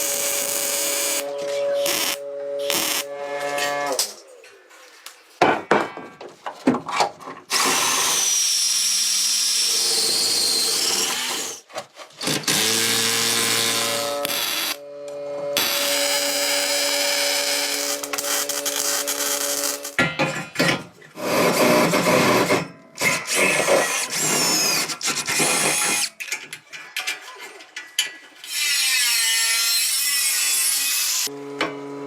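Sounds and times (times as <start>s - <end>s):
handheld power tool running: 0.0s - 4.1s, 7.5s - 11.6s, 12.2s - 14.9s, 15.6s - 20.0s.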